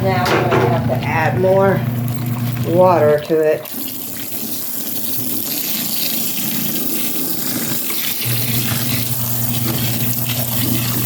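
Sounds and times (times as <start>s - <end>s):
steady low hum: 0.0s - 3.1s
water running into washing machine: 0.0s - 11.0s.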